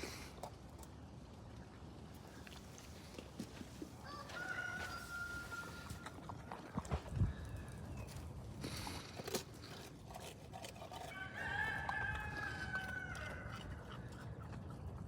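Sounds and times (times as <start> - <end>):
rooster crowing: 4.0 - 6.1, 11.0 - 13.8.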